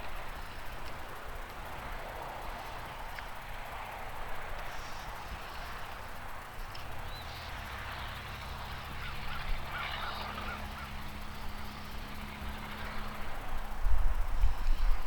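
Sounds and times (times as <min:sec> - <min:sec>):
wind buffeting microphone: 0:08.5 - 0:15.0
geese honking: 0:08.6 - 0:11.4.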